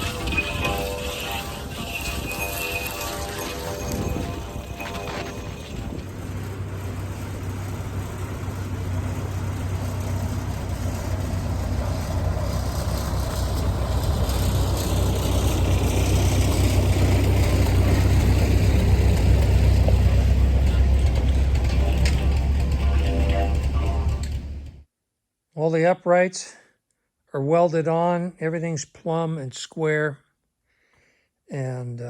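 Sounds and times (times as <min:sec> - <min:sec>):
strong low hum: 0:00.0 - 0:24.8.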